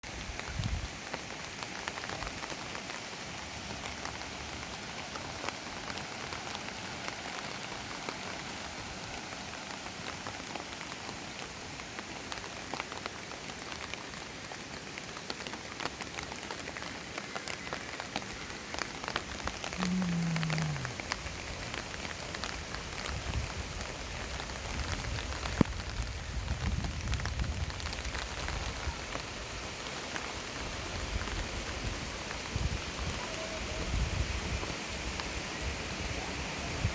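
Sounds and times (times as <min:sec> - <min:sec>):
rain pattering: 0:00.0 - 0:36.9
low falling tone: 0:19.7 - 0:21.0.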